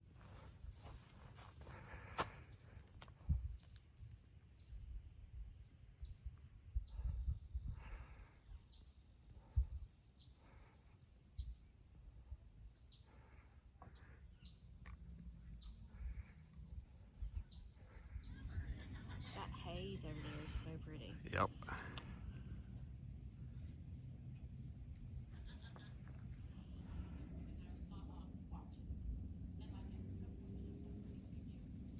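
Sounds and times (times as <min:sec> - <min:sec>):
bird chirping: 0:12.7 - 0:16.2, 0:17.0 - 0:19.1.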